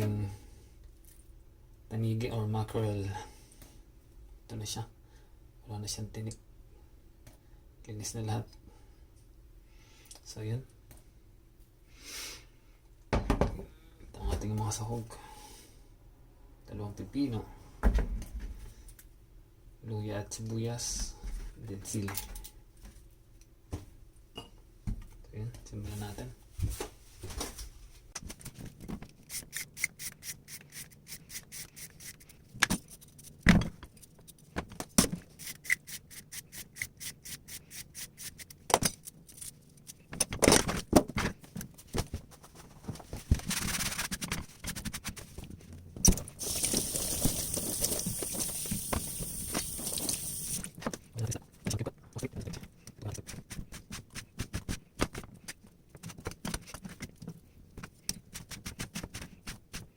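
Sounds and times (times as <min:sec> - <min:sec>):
steady hiss: 0:46.4 - 0:50.6.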